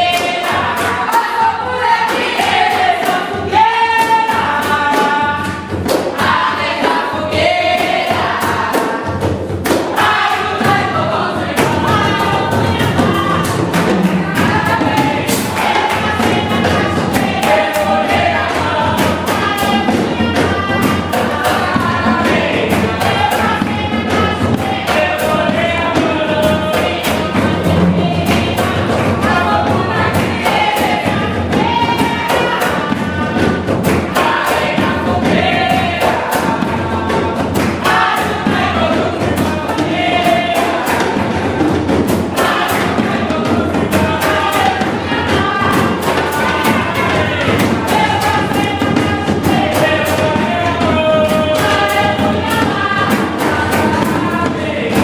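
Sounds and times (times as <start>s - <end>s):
group of voices singing: 0.0s - 55.0s
hand drums and drum kit: 0.0s - 55.0s.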